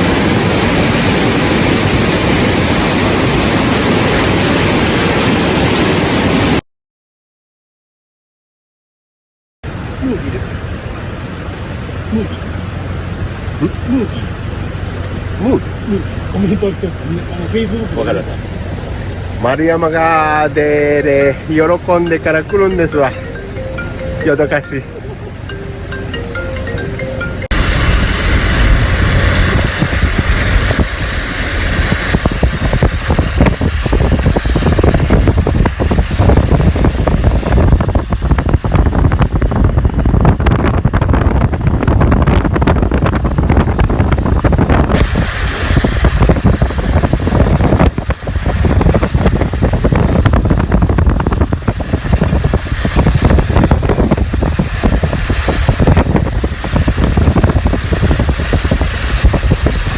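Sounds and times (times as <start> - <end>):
wind buffeting microphone: 27.5 - 59.9.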